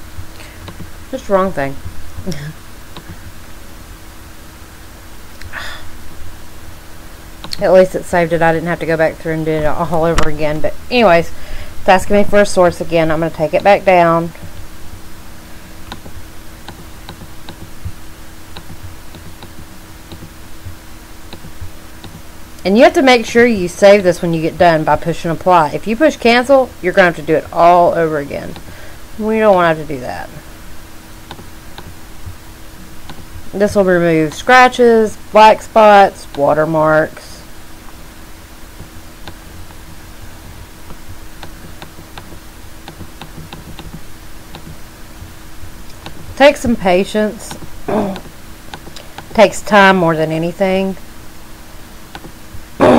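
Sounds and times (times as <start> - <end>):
low electrical hum: 0.0 - 52.9
computer mouse clicking: 15.9 - 17.7, 18.5 - 20.3, 21.3 - 22.2, 31.3 - 32.0, 40.9 - 44.8, 45.9 - 46.3, 47.5 - 49.3, 52.1 - 52.4.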